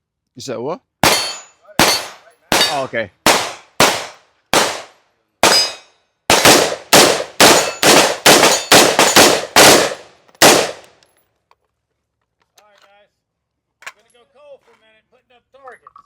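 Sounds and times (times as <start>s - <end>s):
gunshots: 1.0s - 10.9s.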